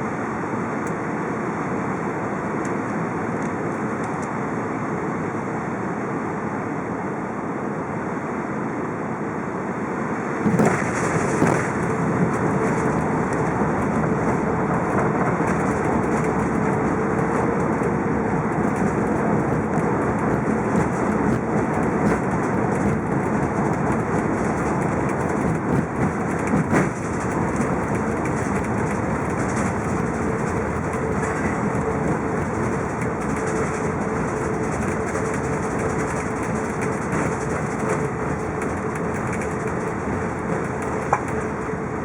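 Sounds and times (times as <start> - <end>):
aircraft cabin engine noise: 0.0 - 42.0
wheels touching down with rattling: 10.4 - 41.8.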